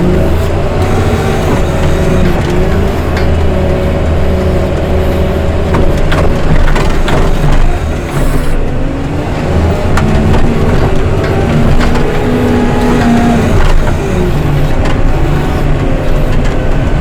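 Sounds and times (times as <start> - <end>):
heavy machine engine running: 0.0 - 17.0
sharp knocks and clicks: 0.0 - 17.0.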